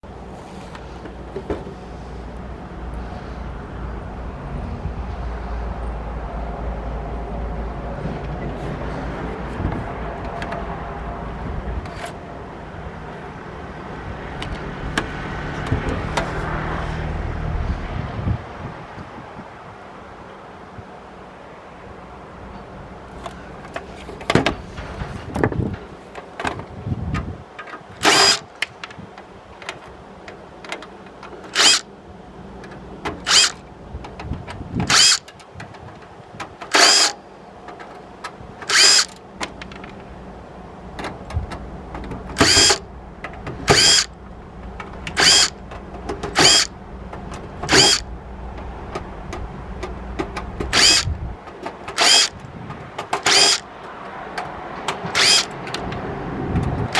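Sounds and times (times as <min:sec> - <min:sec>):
electric screwdriver bursts: 0:28.0 - 0:28.5, 0:31.5 - 0:31.9, 0:33.3 - 0:33.6, 0:34.9 - 0:35.3, 0:36.7 - 0:37.2, 0:38.7 - 0:39.2, 0:42.4 - 0:42.8, 0:43.7 - 0:44.1, 0:45.2 - 0:45.6, 0:46.4 - 0:46.7, 0:47.7 - 0:48.0, 0:50.7 - 0:51.1, 0:51.9 - 0:52.4, 0:53.2 - 0:53.6, 0:55.1 - 0:55.5.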